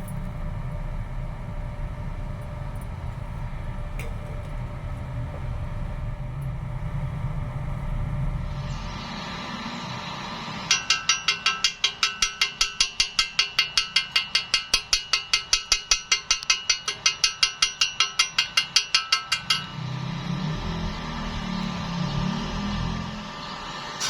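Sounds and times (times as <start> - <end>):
hammer striking metal: 10.6 - 19.8.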